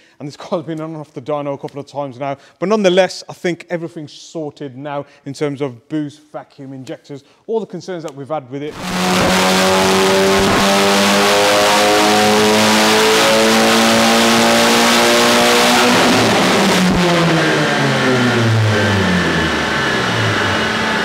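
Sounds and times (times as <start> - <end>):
car engine at full throttle: 8.7 - 21.0.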